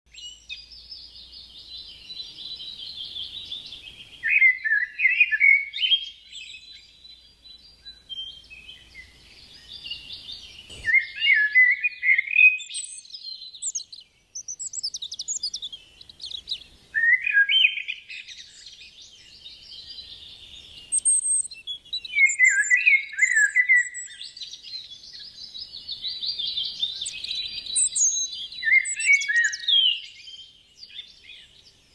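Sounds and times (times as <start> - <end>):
songbirds chirping: 0.1 - 31.9.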